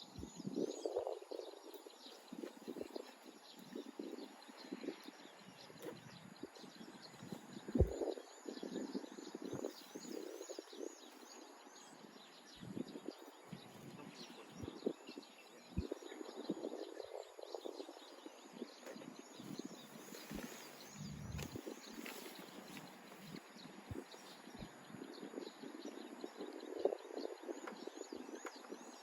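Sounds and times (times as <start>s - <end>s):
camping gear rustling: 19.0s - 24.1s.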